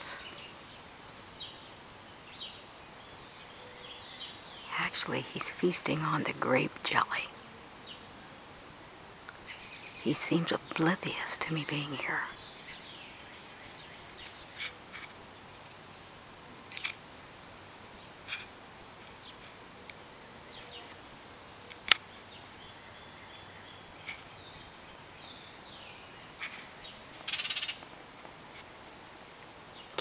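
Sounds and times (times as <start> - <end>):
bird scolding calls: 18.2 - 19.5, 26.3 - 27.8.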